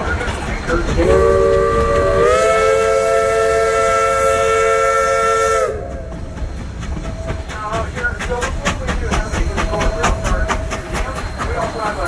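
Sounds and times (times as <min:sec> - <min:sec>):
steam hissing: 0:00.0 - 0:12.0
steam locomotive whistle: 0:01.0 - 0:06.3.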